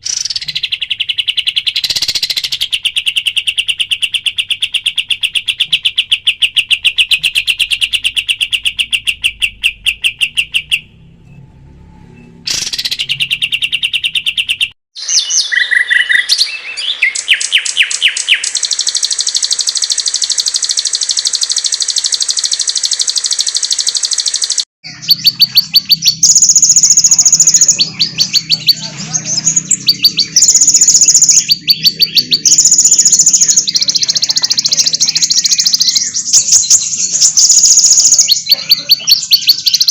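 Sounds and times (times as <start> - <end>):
songbird chirps and trills: 0.0 - 11.4, 12.0 - 39.9.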